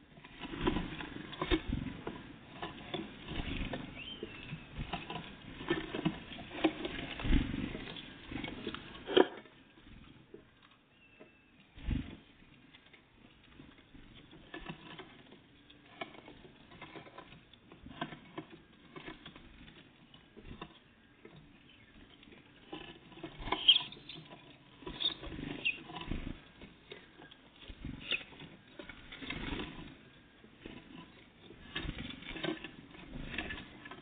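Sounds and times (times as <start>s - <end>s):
birds pecking at seed: 0.0s - 34.0s
high bird chirps: 3.9s - 4.6s.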